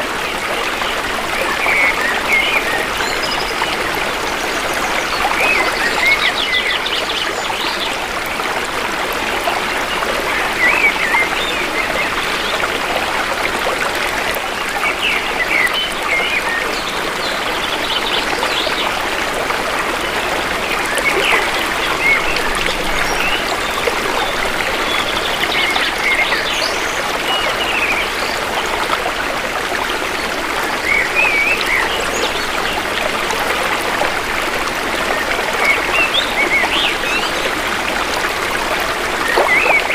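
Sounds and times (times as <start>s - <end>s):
shallow river flowing: 0.0s - 39.9s.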